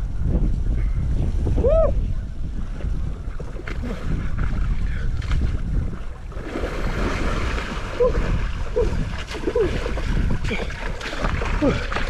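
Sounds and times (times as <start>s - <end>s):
wind rumbling on microphone: 0.0s - 12.0s
water splashing around wading person: 2.8s - 12.0s.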